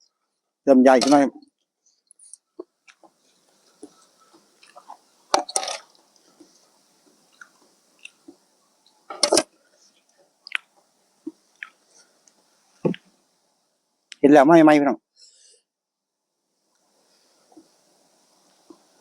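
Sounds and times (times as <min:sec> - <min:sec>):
wet chewing and mouth sounds: 0:02.1 - 0:05.1, 0:05.8 - 0:09.0, 0:10.0 - 0:13.0
small mouth clicks: 0:07.3 - 0:08.4, 0:10.4 - 0:11.8.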